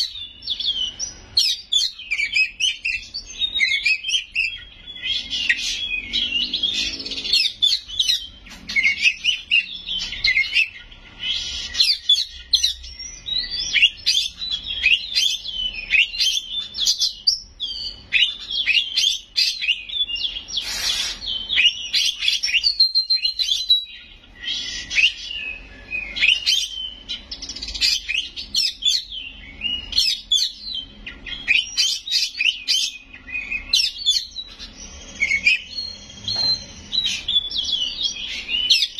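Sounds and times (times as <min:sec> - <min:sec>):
songbird whistling and chattering: 0:00.0 - 0:38.9.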